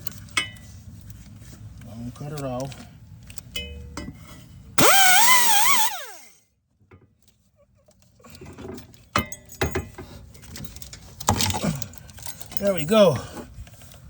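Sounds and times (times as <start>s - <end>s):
air grinder whining: 4.8s - 6.3s.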